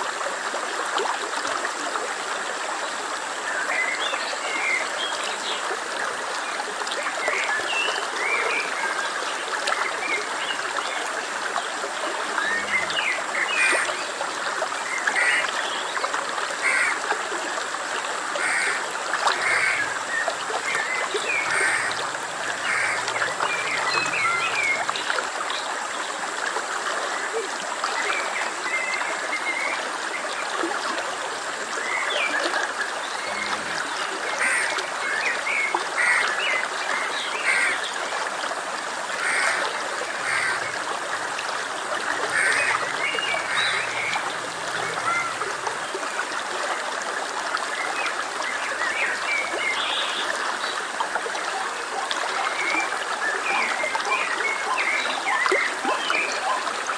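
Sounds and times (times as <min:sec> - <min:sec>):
stream flowing: 0:00.0 - 0:56.9
high chirping animal calls: 0:19.4 - 0:25.1, 0:42.1 - 0:45.9.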